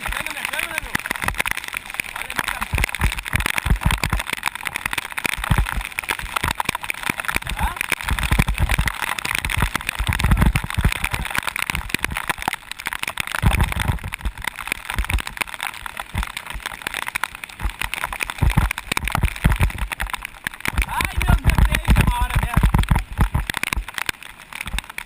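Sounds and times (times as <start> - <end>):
crackle of raindrops and spray: 0.0 - 25.0
wind rumble on microphone: 2.6 - 12.6, 13.3 - 16.6, 17.6 - 24.0.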